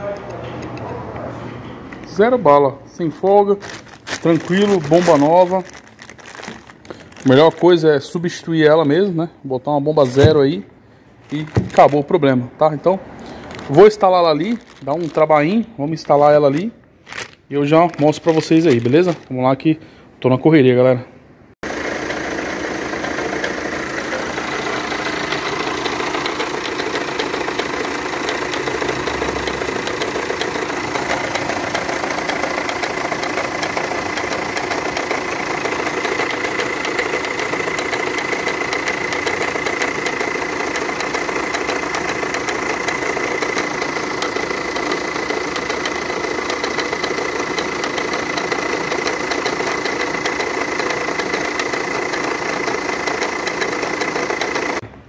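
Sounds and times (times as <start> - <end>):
engine idling: 21.6 - 54.8.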